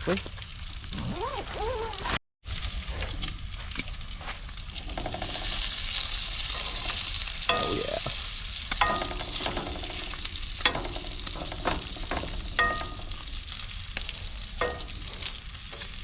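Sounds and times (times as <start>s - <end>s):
bacon sizzling in a pan: 0.0s - 0.9s, 1.8s - 16.0s
utensil clinking against pan: 6.4s - 16.0s.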